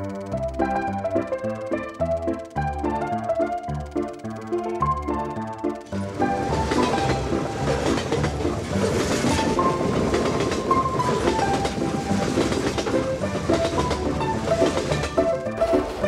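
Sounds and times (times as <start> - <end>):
background music: 0.0 - 16.0
train wheels clattering over rail joints: 5.8 - 16.0.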